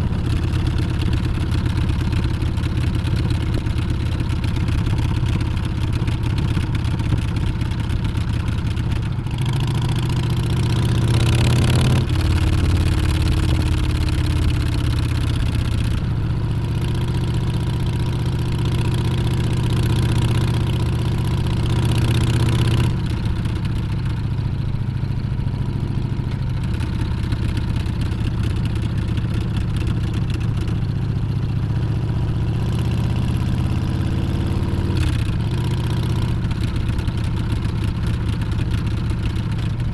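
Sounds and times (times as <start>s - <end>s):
motorcycle engine revving: 9.3s - 15.2s.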